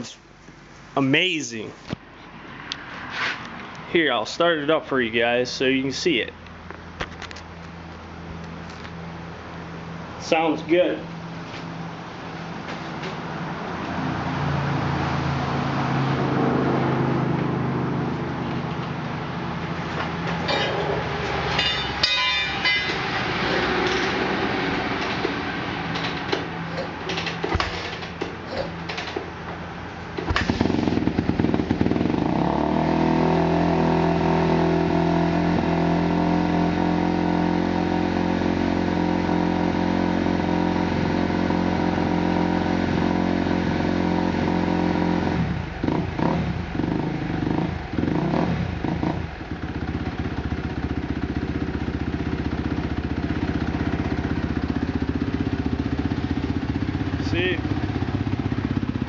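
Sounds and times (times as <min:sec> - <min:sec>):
dirt bike engine running: 0:30.2 - 0:59.0.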